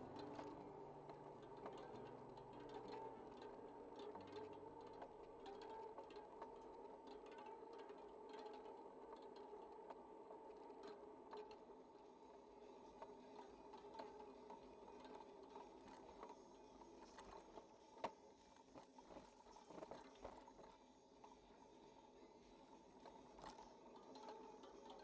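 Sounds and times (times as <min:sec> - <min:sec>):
bicycle rattling and clicking: 0:00.0 - 0:11.8
faint steady hum: 0:00.0 - 0:25.0.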